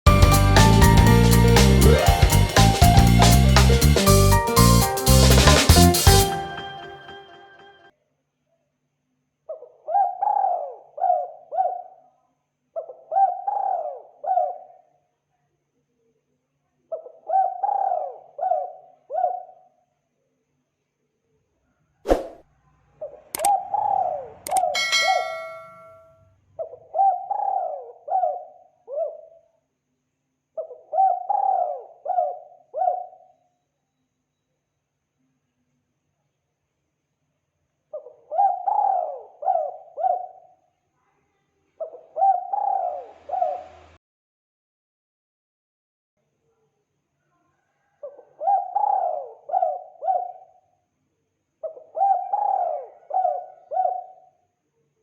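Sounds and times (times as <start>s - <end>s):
ringing tone: 6.2s - 7.9s, 24.7s - 26.1s
dove cooing: 17.3s - 19.4s, 26.8s - 29.2s, 30.9s - 33.2s, 38.0s - 40.4s, 41.8s - 43.6s, 48.4s - 50.4s, 51.6s - 54.2s.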